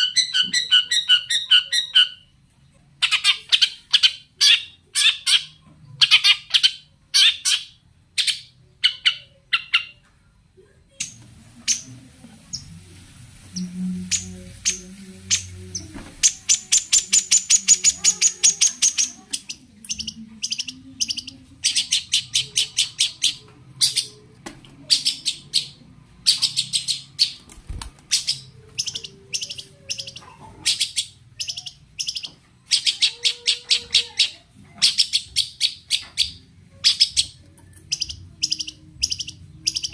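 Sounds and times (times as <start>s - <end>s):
bird harsh chattering song: 13.6s - 24.2s, 24.9s - 39.9s.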